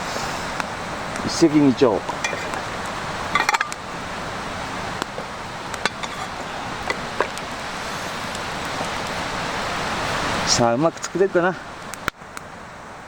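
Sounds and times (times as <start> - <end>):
campfire hiss: 0.0 - 13.0
campfire crackling pops: 0.5 - 10.2, 11.8 - 12.5.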